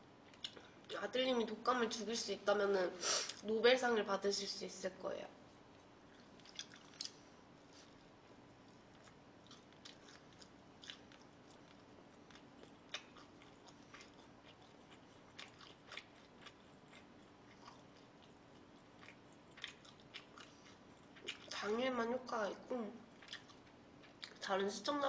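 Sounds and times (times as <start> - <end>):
faint steady hum: 0.0 - 25.0
person chewing and biting: 6.1 - 8.0, 8.8 - 21.6, 23.2 - 24.4.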